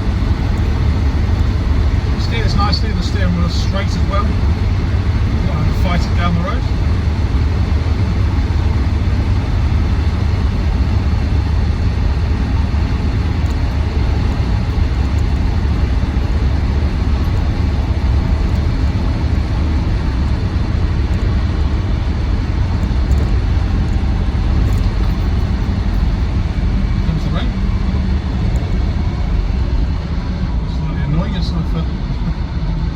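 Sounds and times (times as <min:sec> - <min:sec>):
diesel engine drone: 0:00.0 - 0:32.9
road noise inside car: 0:00.0 - 0:32.9.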